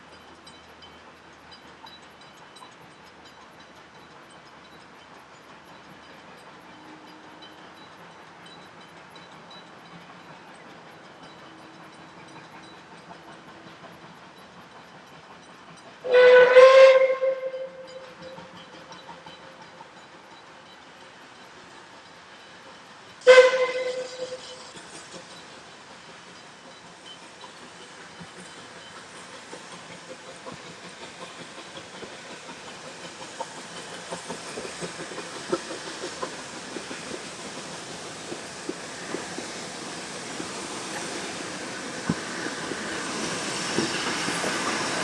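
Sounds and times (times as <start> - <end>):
steam hissing: 0.0 - 45.0
train wheels clicking and knocking: 0.0 - 45.0
steam locomotive whistle blast: 16.0 - 18.1, 23.2 - 24.7.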